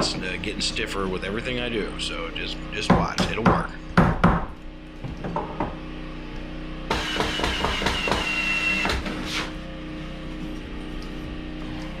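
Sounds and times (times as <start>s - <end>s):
power tool whining into wood: 6.9s - 9.5s.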